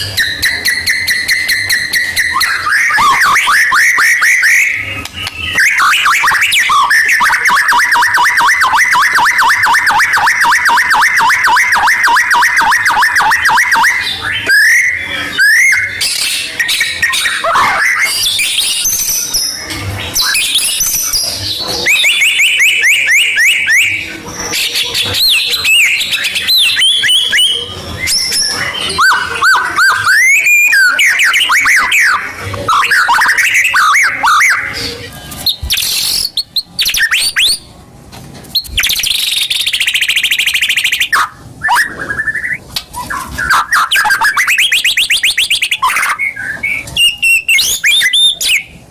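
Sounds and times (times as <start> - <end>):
bird song with whistles and trills: 0.0 - 37.8, 38.5 - 48.9.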